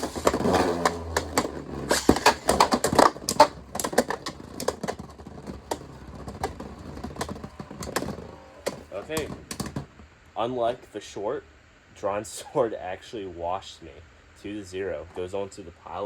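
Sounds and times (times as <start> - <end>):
spinning tops clashing in plastic stadium: 0.0 - 9.9.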